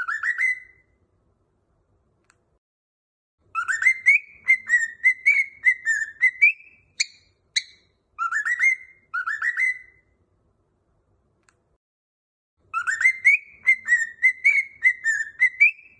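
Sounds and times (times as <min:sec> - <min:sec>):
cockatiel chirps: 0:00.0 - 0:00.9, 0:03.5 - 0:10.1, 0:12.7 - 0:15.9
cockatiel whistling: 0:00.0 - 0:00.9, 0:03.5 - 0:10.1, 0:12.7 - 0:15.9.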